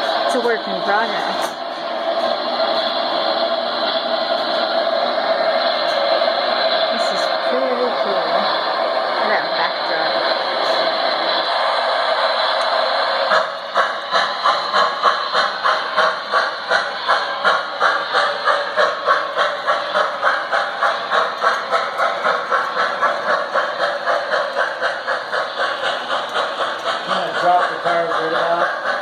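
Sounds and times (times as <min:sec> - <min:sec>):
model train running: 0:00.0 - 0:29.0
regular clicking: 0:11.1 - 0:29.0.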